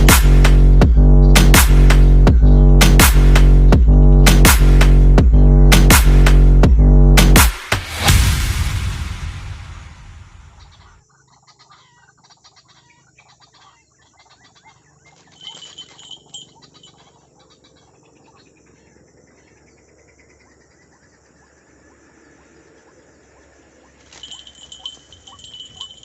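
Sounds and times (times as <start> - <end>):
background music: 0.0 - 10.6
faint outdoor ambience: 7.8 - 26.0
high-pitched bird call: 10.5 - 18.4, 24.0 - 26.0.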